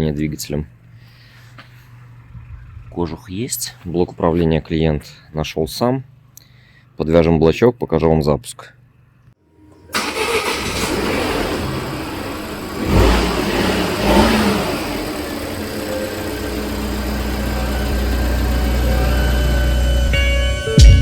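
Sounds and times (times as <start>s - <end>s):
car engine starting and idling: 1.8s - 3.8s, 9.6s - 21.0s.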